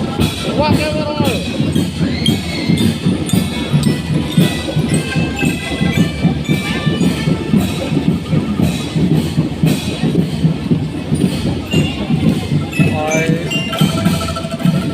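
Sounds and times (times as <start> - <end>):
marching drum band playing: 0.0 - 14.9.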